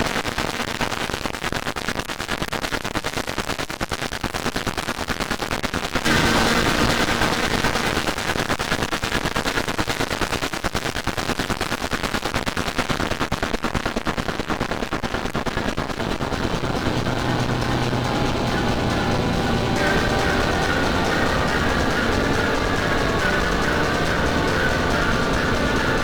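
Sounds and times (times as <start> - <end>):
electronic music loops: 6.1 - 8.0, 15.8 - 26.0
low steady tone: 15.9 - 26.0.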